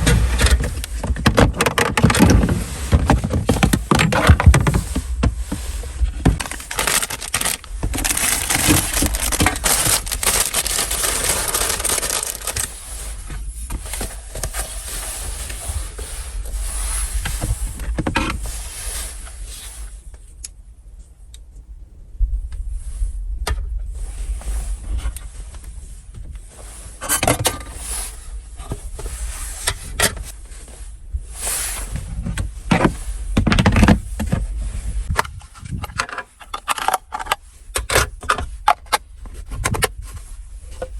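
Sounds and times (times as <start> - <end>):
objects scraping and clattering: 0.0 - 19.6, 31.7 - 40.9.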